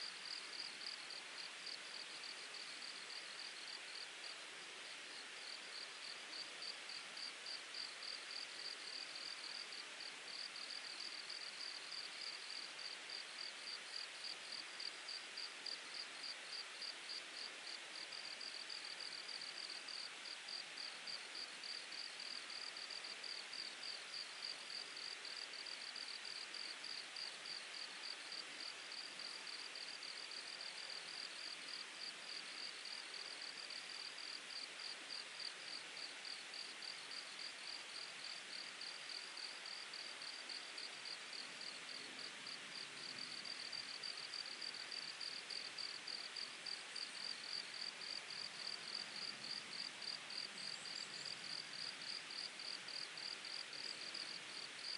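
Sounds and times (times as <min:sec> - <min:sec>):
insect chirping: 0:47.0 - 0:54.9.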